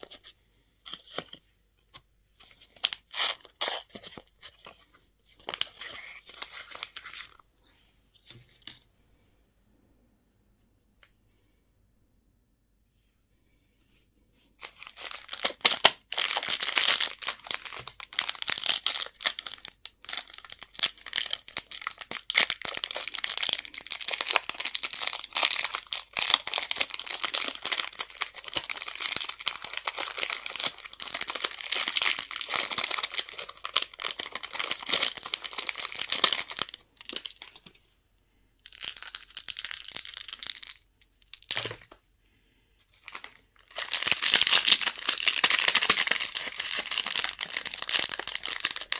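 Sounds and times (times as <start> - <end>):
crinkly packaging rustling: 0.9 - 7.5, 14.6 - 37.8, 38.7 - 42.0, 42.9 - 48.9.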